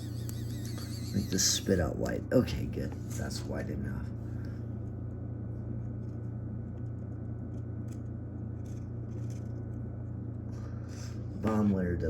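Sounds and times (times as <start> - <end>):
small motor humming: 0.0 - 1.8.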